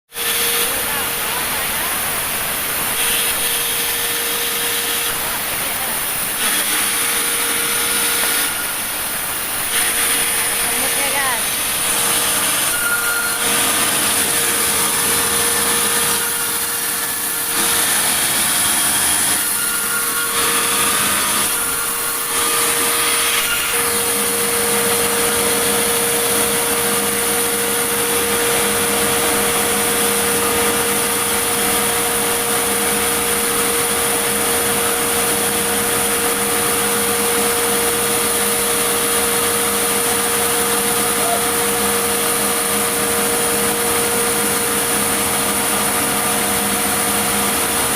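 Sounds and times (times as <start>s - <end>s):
sawmill saw cutting wood: 0.1s - 47.9s.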